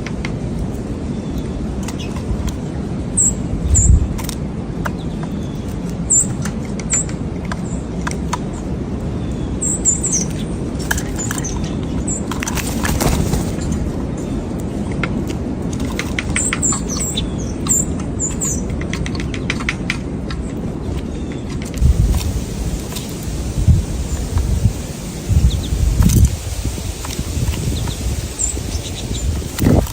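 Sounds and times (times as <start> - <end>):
wing flaps of birds: 12.1 - 14.1, 21.7 - 29.9.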